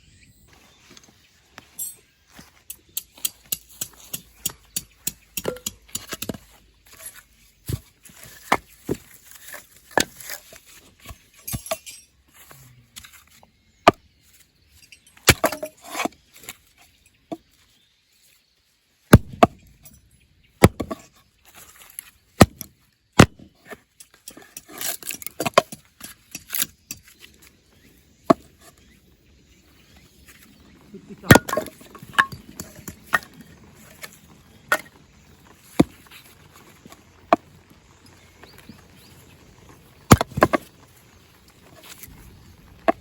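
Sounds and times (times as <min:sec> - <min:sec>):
blade chopping wood: 0:03.0 - 0:11.8, 0:15.2 - 0:16.1, 0:19.1 - 0:19.9, 0:20.6 - 0:21.1, 0:22.0 - 0:27.3, 0:31.3 - 0:37.6, 0:40.0 - 0:40.8
wood clattering: 0:14.8 - 0:16.6, 0:23.6 - 0:27.2, 0:31.1 - 0:35.0, 0:40.1 - 0:40.8.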